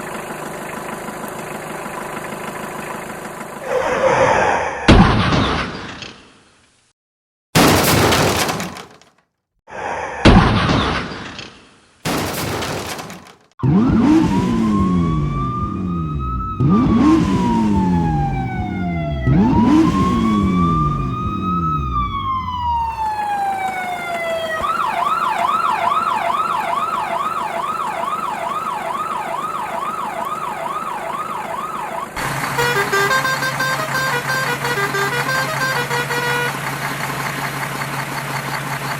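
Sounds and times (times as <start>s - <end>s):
crash sounds: 7.6s - 9.2s, 10.2s - 14.4s
emergency siren wailing and yelping: 13.6s - 36.5s.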